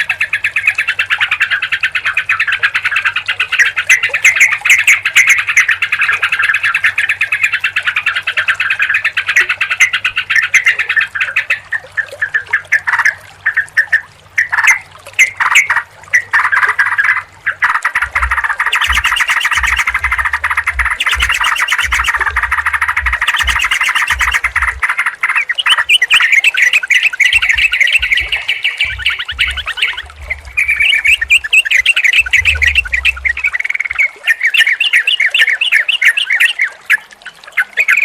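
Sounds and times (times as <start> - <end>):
bulbuls chattering: 12.5 - 34.4
faint low hum: 16.8 - 24.9, 27.4 - 34.0
low thumps: 18.1 - 24.8, 27.3 - 33.7.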